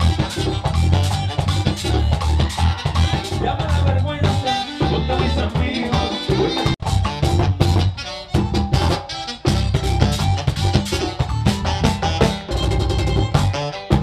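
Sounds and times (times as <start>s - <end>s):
band playing latin dance music: 0.0s - 14.0s.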